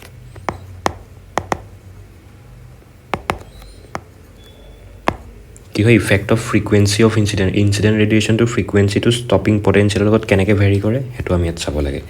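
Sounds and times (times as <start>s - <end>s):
sharp short clicks and taps: 0.0s - 1.8s, 3.1s - 4.2s, 5.0s - 5.3s
faint steady low hum: 0.0s - 12.0s.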